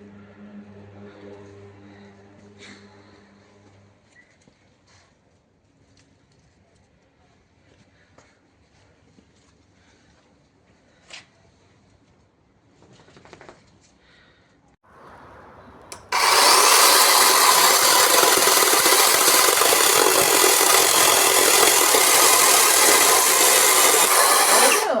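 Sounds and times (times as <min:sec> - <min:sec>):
electric chainsaw cutting wood: 0:15.9 - 0:25.0.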